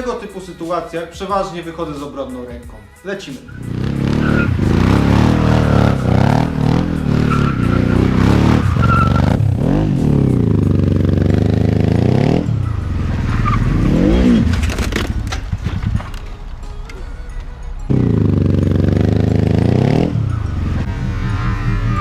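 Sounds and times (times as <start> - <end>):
quad engine revving: 3.6 - 16.2, 17.9 - 22.0.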